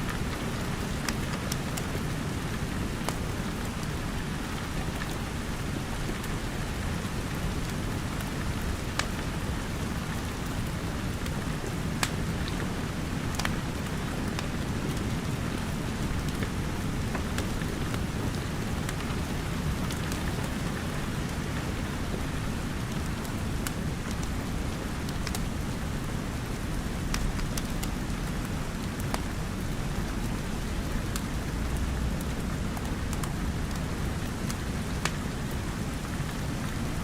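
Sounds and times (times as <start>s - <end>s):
dense rain: 0.0s - 37.0s
wood fire crackling: 0.1s - 37.0s.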